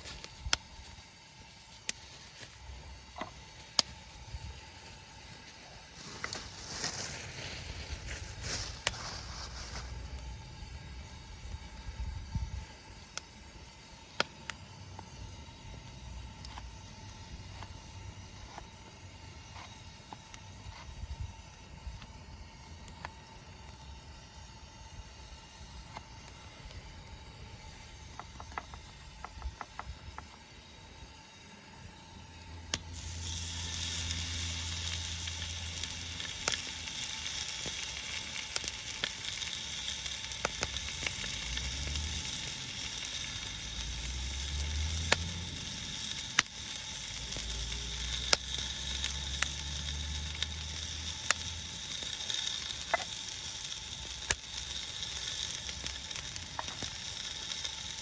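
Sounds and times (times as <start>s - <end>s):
food sizzling in a pan: 4.8s - 12.0s, 31.0s - 58.0s.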